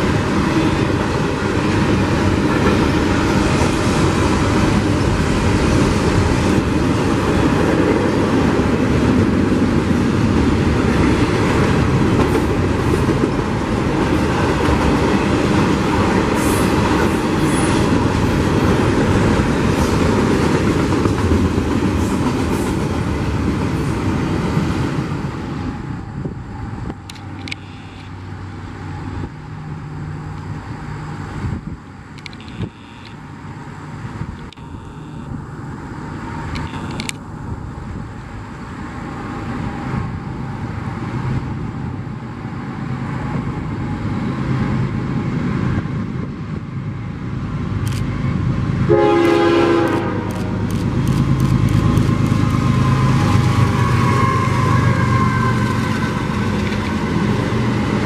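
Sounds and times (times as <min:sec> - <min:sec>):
fast clicks of train: 0:00.0 - 0:58.0
train rumble: 0:00.0 - 0:58.0
locomotive horn blast: 0:32.4 - 0:33.2, 0:34.5 - 0:35.4, 0:48.9 - 0:50.6, 0:53.7 - 0:56.3.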